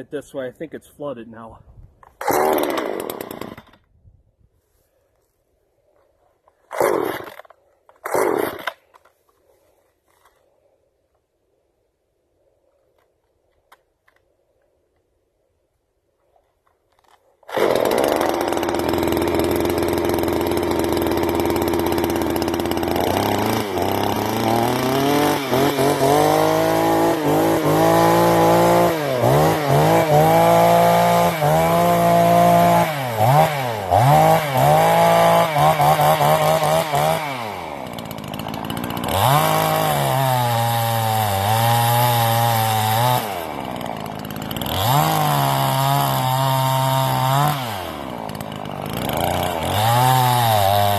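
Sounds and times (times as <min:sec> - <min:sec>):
chainsaw revving: 0:02.2 - 0:03.8, 0:06.7 - 0:08.9, 0:17.4 - 0:50.9.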